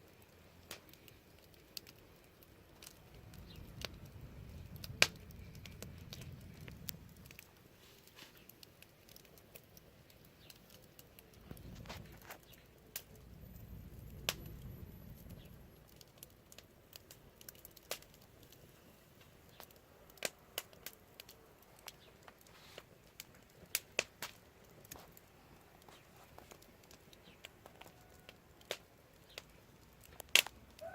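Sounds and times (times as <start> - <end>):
wood fire crackling: 0.0 - 30.9
low rumble: 3.0 - 7.5, 13.1 - 16.0.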